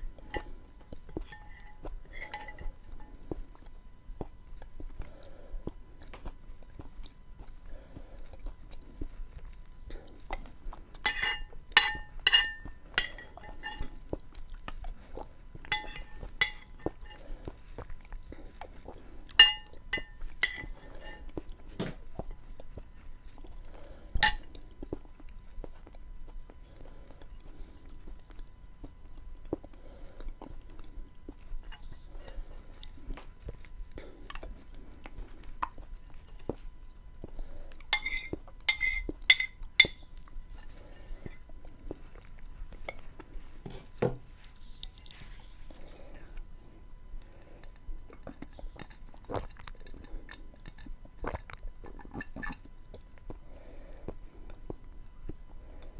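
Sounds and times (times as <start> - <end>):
chewing soft beans: 0.0 - 55.9
cutlery clinking against dish: 11.1 - 14.0, 15.7 - 16.9, 19.4 - 21.2, 38.0 - 40.0.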